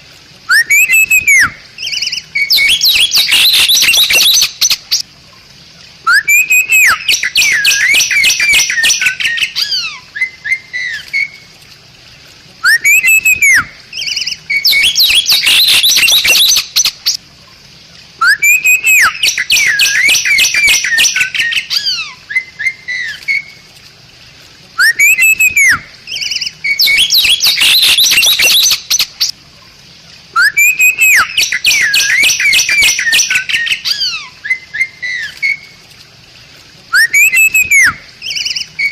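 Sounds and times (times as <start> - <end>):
myna singing whistle and chatter: 0.5 - 1.6, 6.1 - 9.0, 12.6 - 13.7, 18.2 - 21.6, 24.8 - 25.8, 30.4 - 33.8, 36.9 - 38.9.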